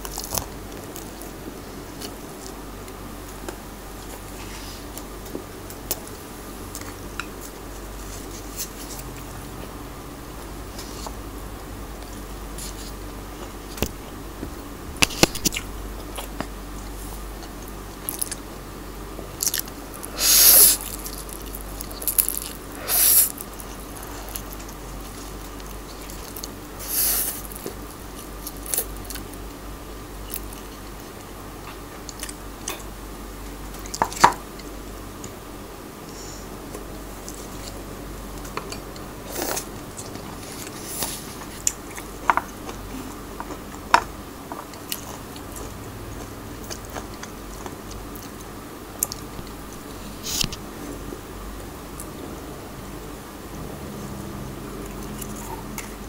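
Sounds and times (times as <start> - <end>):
noodle slurping: 20.1 - 20.9, 22.8 - 23.4.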